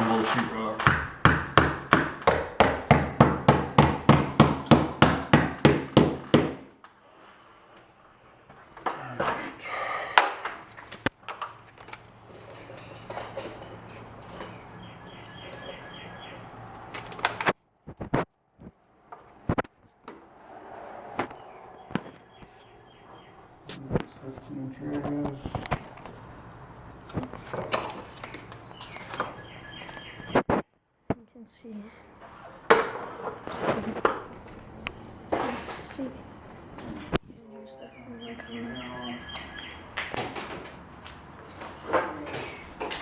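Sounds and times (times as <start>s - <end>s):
hammer striking rapidly: 0.8s - 6.7s.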